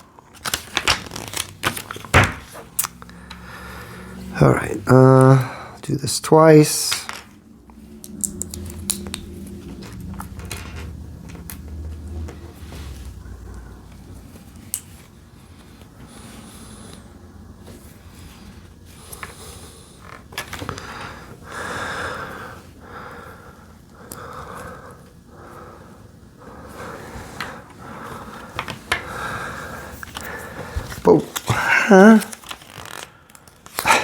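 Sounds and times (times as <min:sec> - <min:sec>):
breathing through nose: 0:03.1 - 0:04.3.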